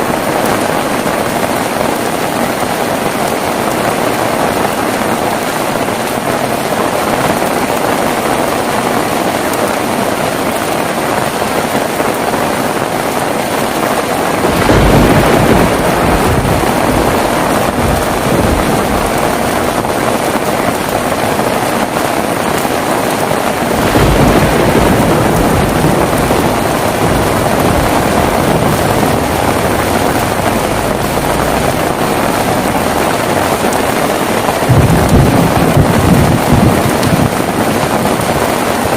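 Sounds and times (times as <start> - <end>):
heavy rain: 0.0 - 38.9
thunder rolling: 11.2 - 38.9.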